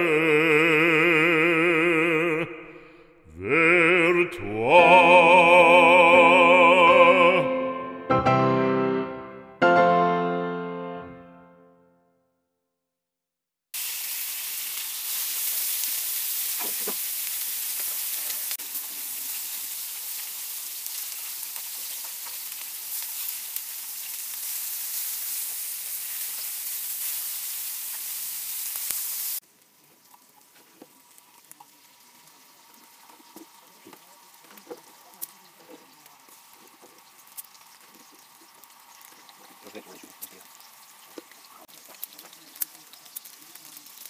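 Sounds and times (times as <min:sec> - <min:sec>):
food sizzling on a griddle: 0:13.7 - 0:44.0.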